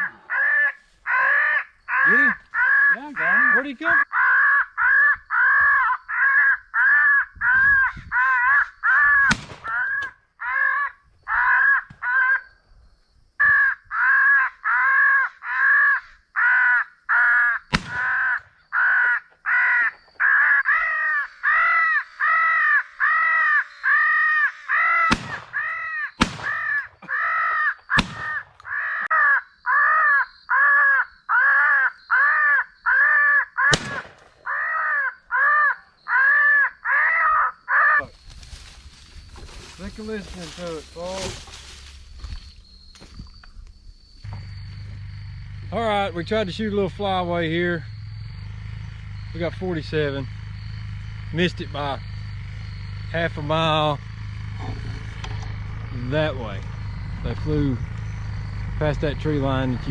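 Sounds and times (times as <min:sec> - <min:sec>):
electronic crow caws: 0:00.0 - 0:12.6, 0:13.4 - 0:38.7, 0:44.2 - 0:59.9
sharp cracks: 0:09.2 - 0:10.2, 0:17.7 - 0:18.5, 0:24.7 - 0:28.9, 0:33.7 - 0:34.8.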